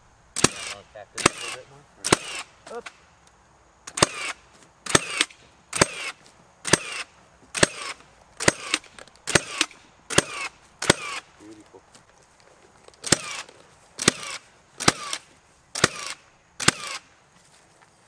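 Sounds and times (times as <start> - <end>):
nail gun firing: 0.4 - 3.0, 3.9 - 11.3, 13.0 - 17.1.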